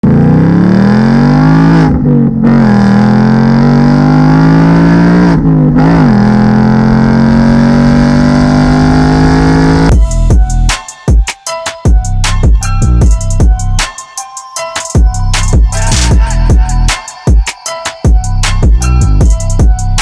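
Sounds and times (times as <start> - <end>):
car engine accelerating hard: 0.0 - 9.9
music with sharp beat: 9.8 - 20.0.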